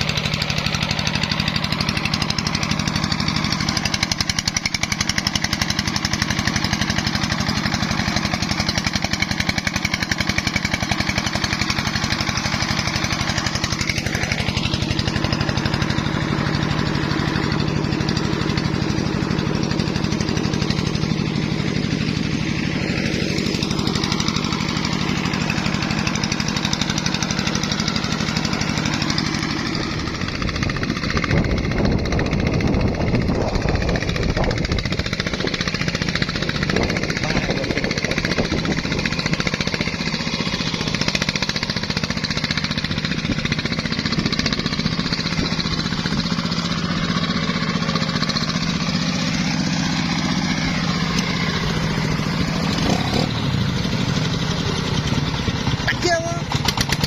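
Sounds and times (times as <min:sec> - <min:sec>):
diesel engine chugging: 0:00.0 - 0:57.0.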